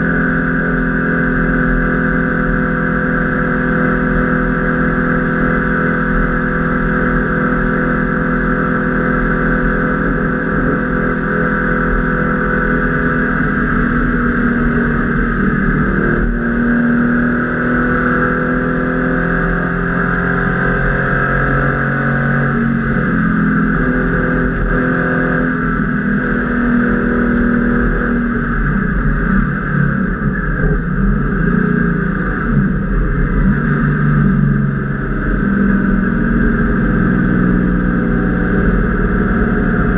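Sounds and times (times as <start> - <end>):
car engine pulling hard: 0.0 - 39.9.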